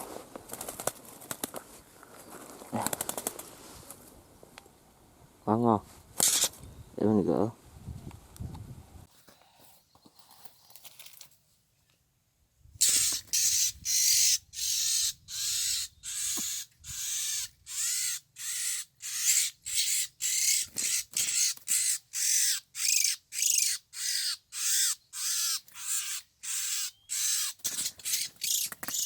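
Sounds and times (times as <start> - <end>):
bird rasping scolding calls: 12.8 - 29.0.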